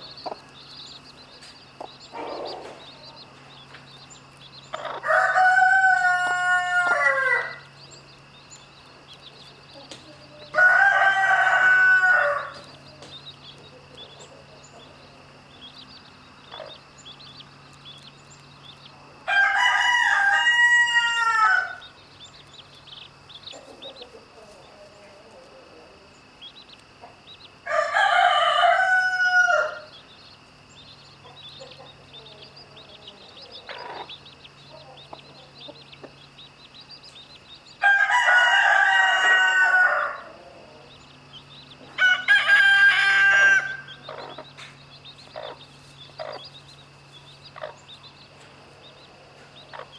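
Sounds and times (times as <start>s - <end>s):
rooster crowing: 4.8s - 7.8s, 10.5s - 12.7s, 19.3s - 21.9s, 27.6s - 30.0s, 37.8s - 40.9s, 42.0s - 44.5s.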